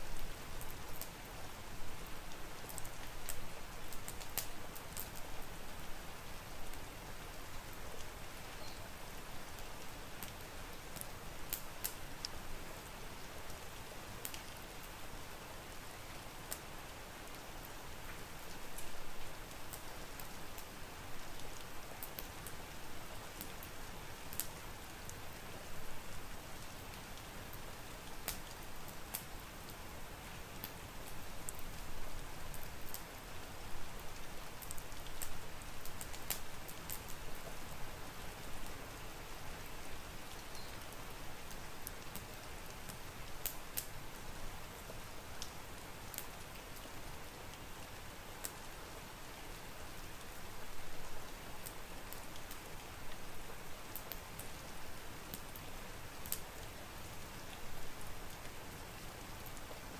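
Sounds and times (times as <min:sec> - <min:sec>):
steady rain hiss: 0:00.0 - 0:59.9
wood fire crackling and popping: 0:02.6 - 0:05.2, 0:11.0 - 0:12.4, 0:13.8 - 0:14.5, 0:23.3 - 0:25.2, 0:28.0 - 0:29.8, 0:30.6 - 0:33.2, 0:34.2 - 0:37.5, 0:40.4 - 0:44.0, 0:44.8 - 0:46.8, 0:53.9 - 0:54.6, 0:56.2 - 0:56.8.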